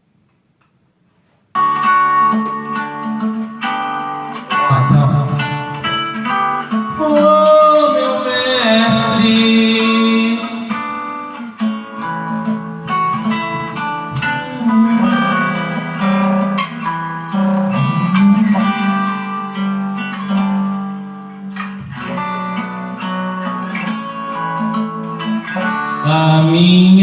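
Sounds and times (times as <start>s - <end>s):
guitar playing held chords: 1.6s - 27.0s
person singing: 3.7s - 11.5s, 13.8s - 20.8s, 25.6s - 27.0s.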